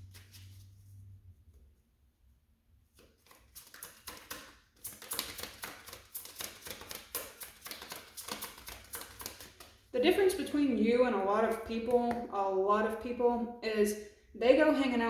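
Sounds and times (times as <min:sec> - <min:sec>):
cards being shuffled: 0:03.0 - 0:09.8.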